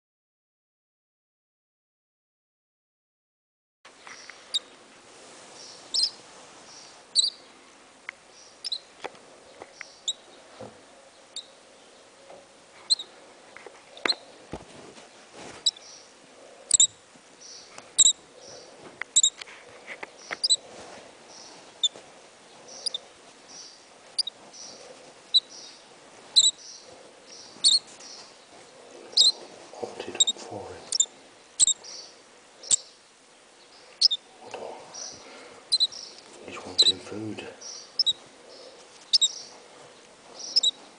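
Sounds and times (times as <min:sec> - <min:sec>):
nestling bird cheeping: 0:05.7 - 0:06.2, 0:07.1 - 0:07.4, 0:08.6 - 0:08.9, 0:12.9 - 0:13.1, 0:15.6 - 0:16.0, 0:16.7 - 0:18.2, 0:19.1 - 0:19.4, 0:20.3 - 0:20.6, 0:22.7 - 0:23.0, 0:23.6 - 0:25.7, 0:26.4 - 0:26.8, 0:27.4 - 0:27.9, 0:29.1 - 0:29.4, 0:30.2 - 0:32.9, 0:34.0 - 0:34.2, 0:35.0 - 0:36.2, 0:37.7 - 0:38.2, 0:39.1 - 0:39.5, 0:40.4 - 0:40.8.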